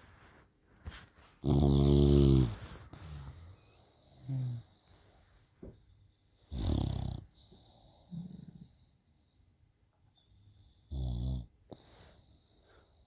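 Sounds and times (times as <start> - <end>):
dog snoring: 1.4 - 5.0, 6.5 - 8.8, 10.7 - 13.0.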